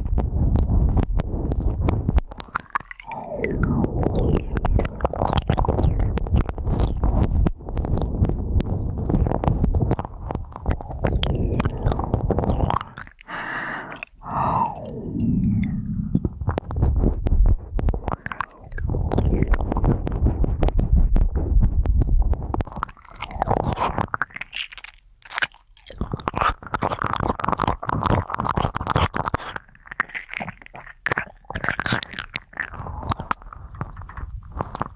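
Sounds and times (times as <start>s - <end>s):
crackly scratching on microphone: 0.0s - 13.2s, 14.8s - 34.9s
low rumble: 3.1s - 12.9s, 14.2s - 22.7s.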